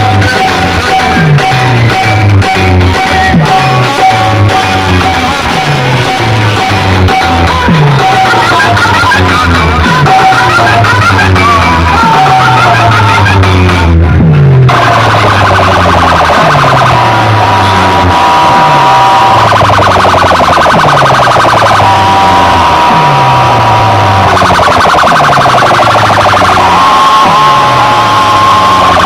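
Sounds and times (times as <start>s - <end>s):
electronic dance music: 0.0s - 29.0s
pulsing siren-like tone: 14.7s - 29.0s.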